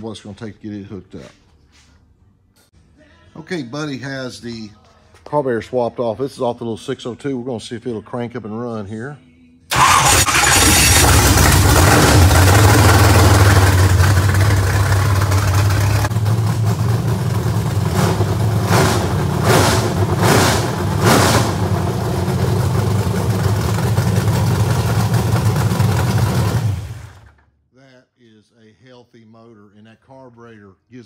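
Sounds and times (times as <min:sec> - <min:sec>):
race car engine running: 0:09.7 - 0:27.3.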